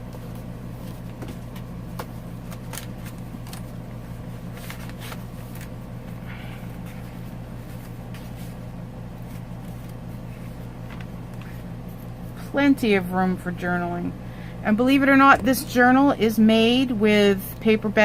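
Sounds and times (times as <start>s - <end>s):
steady low hum: 0.0s - 18.0s
paper pages rustling: 0.1s - 5.9s, 6.8s - 11.7s.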